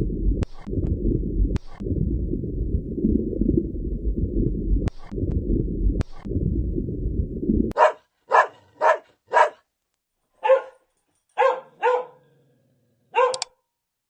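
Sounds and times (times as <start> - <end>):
low rumbling noise: 0.0 - 7.8
dog barking: 7.8 - 9.7, 10.4 - 12.4, 13.1 - 13.6.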